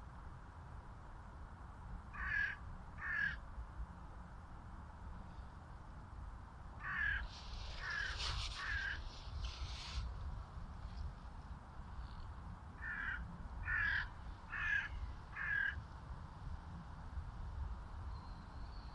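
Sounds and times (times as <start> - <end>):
crows cawing: 2.1 - 3.4, 6.8 - 9.1, 12.8 - 15.8.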